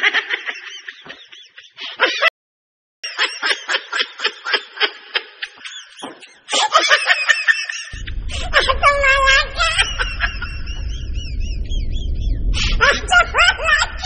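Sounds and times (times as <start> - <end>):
burst of laughter: 0.0 - 2.3, 3.0 - 14.0
low hum: 7.9 - 14.0.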